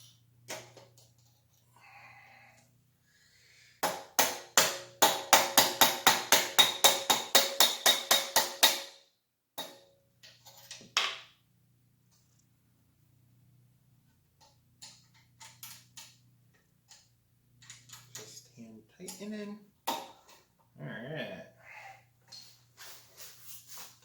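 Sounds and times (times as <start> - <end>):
hammer ringing on metal: 3.8 - 9.0.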